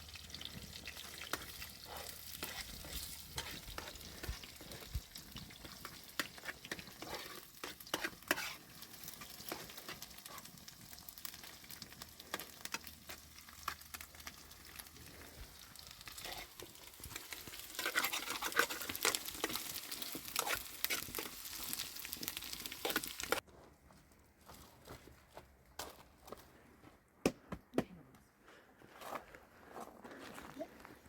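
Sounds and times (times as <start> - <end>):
food sizzling in a pan: 0.0 - 23.4.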